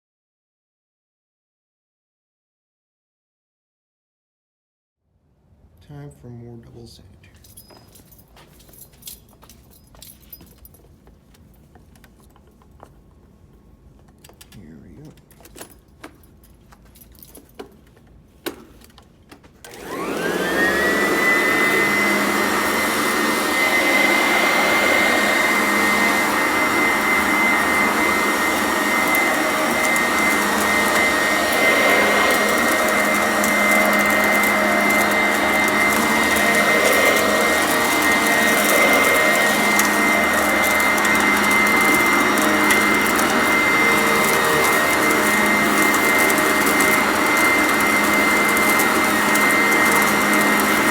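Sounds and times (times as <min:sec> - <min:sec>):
vacuum cleaner motor whine: 0:19.6 - 0:50.9.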